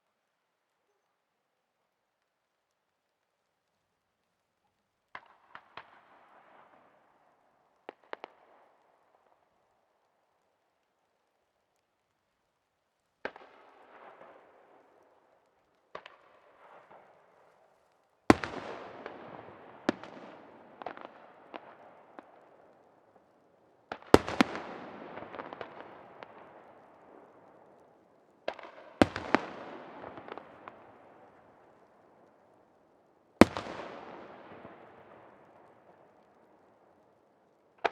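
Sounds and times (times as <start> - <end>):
crackling echoing tail: 5.1 - 37.9
fireworks bursting: 18.3 - 22.8, 23.9 - 32.2, 33.4 - 36.8.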